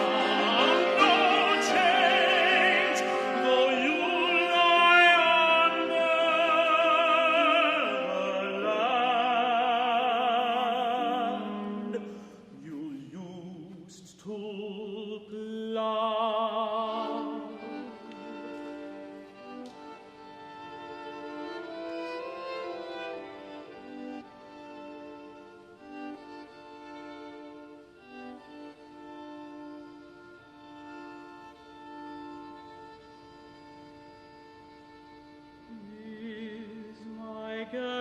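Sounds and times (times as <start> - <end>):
tenor singing with vibrato: 0.0 - 18.8
string quartet: 0.0 - 38.0.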